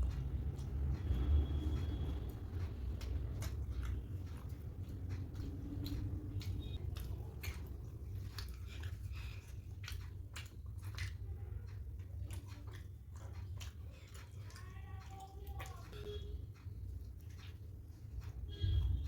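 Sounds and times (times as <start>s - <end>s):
steady low hum: 0.0s - 14.5s
person chewing food: 0.0s - 19.0s
wet mouth clicks and smacks: 0.0s - 19.0s.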